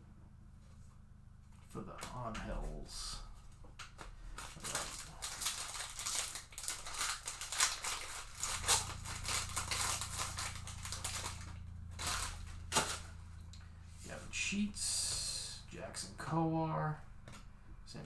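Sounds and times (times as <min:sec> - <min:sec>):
low steady hum: 0:00.0 - 0:18.0
cards and wrappers rustling: 0:01.6 - 0:15.5.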